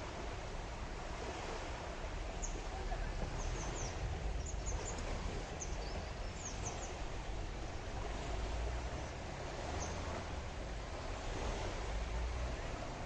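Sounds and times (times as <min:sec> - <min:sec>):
small birds chirping: 0:03.3 - 0:07.1, 0:09.0 - 0:10.1.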